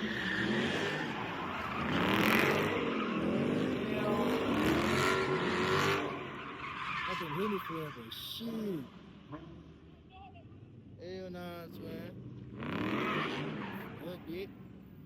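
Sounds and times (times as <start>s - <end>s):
car engine revving: 0.0s - 7.6s, 11.7s - 14.7s.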